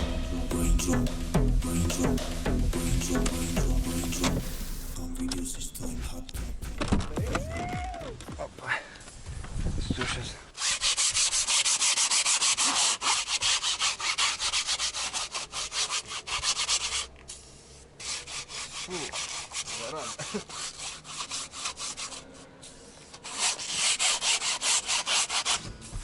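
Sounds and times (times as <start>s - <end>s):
stiff brush scrubbing upholstery: 10.5s - 26.0s.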